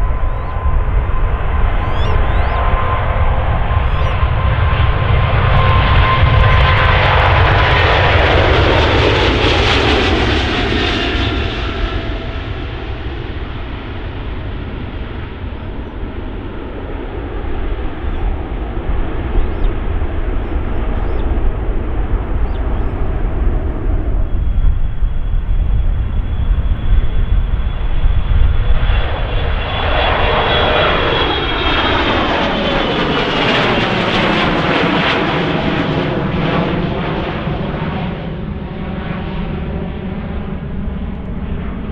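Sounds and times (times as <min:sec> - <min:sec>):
high steady whine: 0:00.0 - 0:07.3, 0:15.4 - 0:32.6
jet engines passing: 0:00.0 - 0:41.9.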